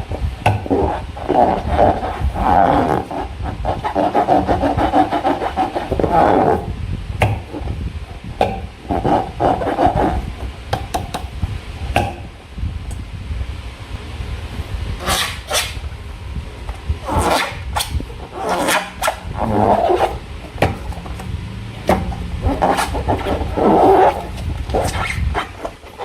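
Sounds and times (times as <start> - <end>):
squeaky rubbing of slime balloon: 0.6 - 6.8, 8.8 - 10.5, 15.0 - 15.8, 17.0 - 21.2, 21.9 - 26.0.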